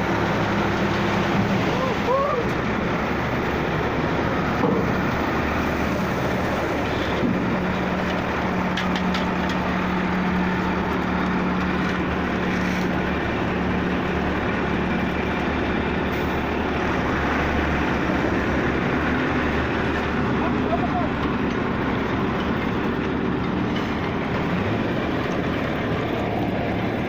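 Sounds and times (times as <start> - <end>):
heavy vehicle engine running: 0.0 - 27.0.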